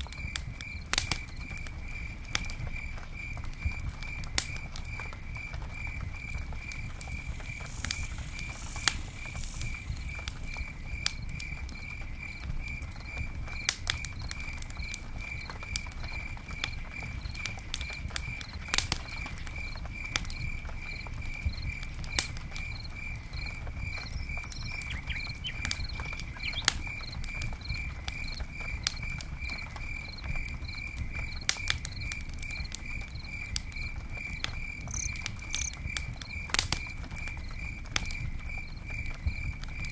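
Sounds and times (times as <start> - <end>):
campfire crackling: 0.0 - 39.9
cricket chirping: 0.0 - 39.9.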